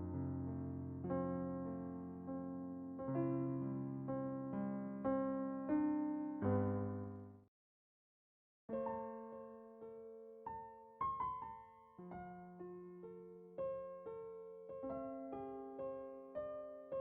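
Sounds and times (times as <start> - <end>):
slow piano chords: 0.0 - 7.4.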